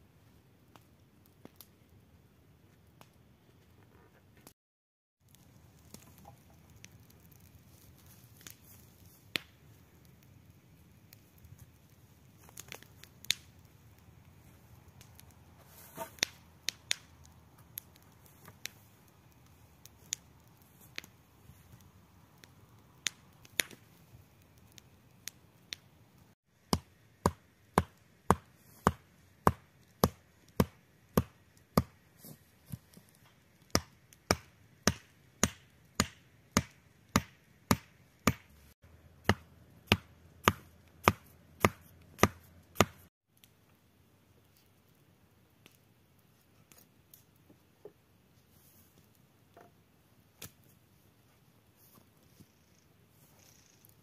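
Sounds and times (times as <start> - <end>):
sharp chopping strikes: 39.2 - 43.0.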